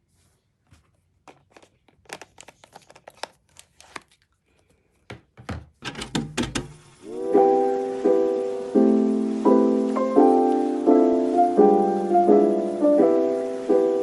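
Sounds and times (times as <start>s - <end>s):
piano music: 7.0s - 14.0s.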